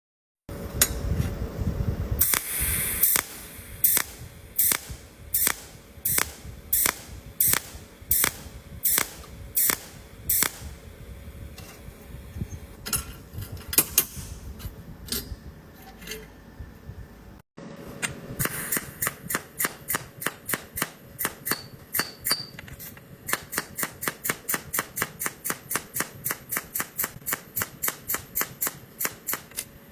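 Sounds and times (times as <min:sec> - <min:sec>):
faint steady hum: 0:00.5 - 0:17.4
laser welder pops: 0:02.2 - 0:11.8.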